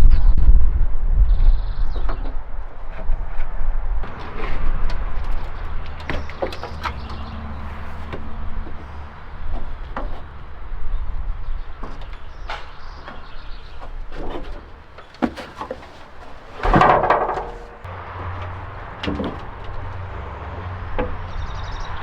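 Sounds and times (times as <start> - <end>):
rattling scrape: 4.0 - 21.6
metal knocks and clanks: 4.0 - 22.0.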